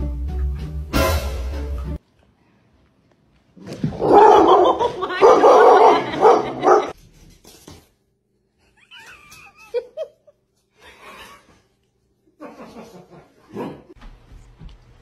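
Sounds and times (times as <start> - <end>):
people laughing: 4.3 - 6.9, 8.8 - 11.7, 12.4 - 13.5.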